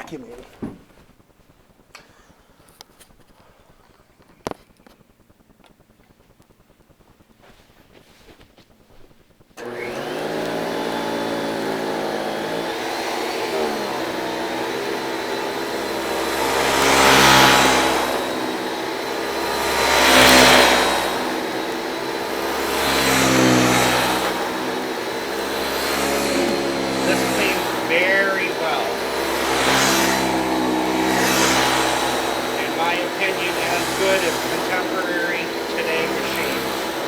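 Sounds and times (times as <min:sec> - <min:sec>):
vacuum cleaner motor whining: 0:09.6 - 0:37.0.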